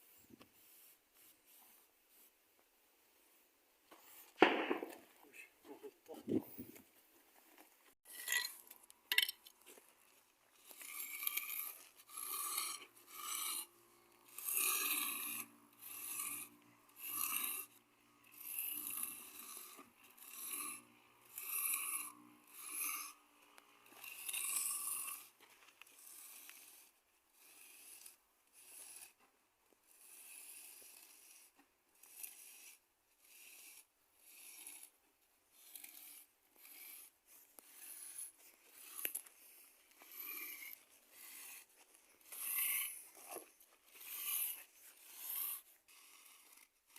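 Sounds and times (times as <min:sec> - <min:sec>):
hand tool scraping cement: 0:08.0 - 0:09.9, 0:10.5 - 0:23.2, 0:23.9 - 0:29.3, 0:30.0 - 0:46.9.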